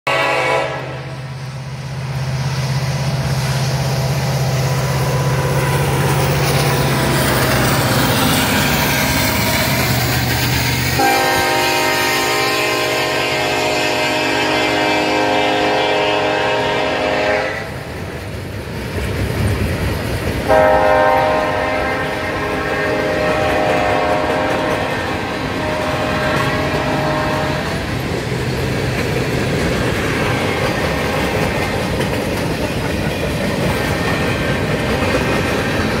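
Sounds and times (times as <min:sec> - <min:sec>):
locomotive air horn: 0:00.0 - 0:01.2, 0:11.0 - 0:17.8, 0:20.5 - 0:27.9.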